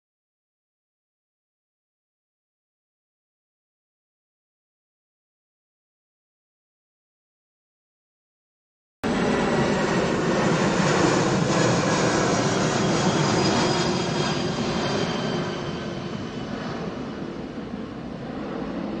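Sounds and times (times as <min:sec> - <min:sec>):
jet engines roaring: 0:09.0 - 0:19.0.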